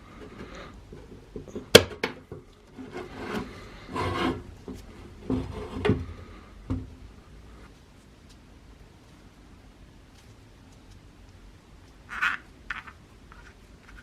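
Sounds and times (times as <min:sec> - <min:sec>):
scraping on metal: 0:02.6 - 0:06.6.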